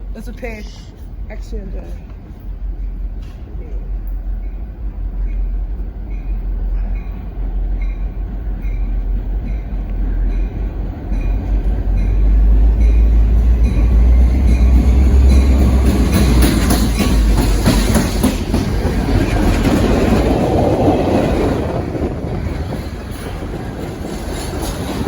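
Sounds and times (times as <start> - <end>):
train low rumble: 0.0 - 25.0.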